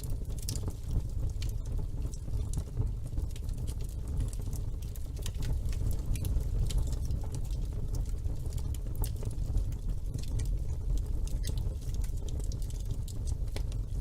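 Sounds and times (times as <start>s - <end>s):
fire crackling and popping: 0.0s - 14.0s
low rumble of fire: 0.0s - 14.0s.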